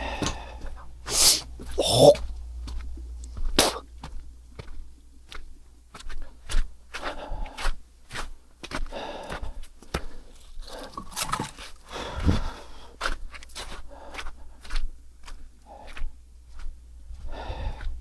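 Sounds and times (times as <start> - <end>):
crunching: 10.7 - 12.0.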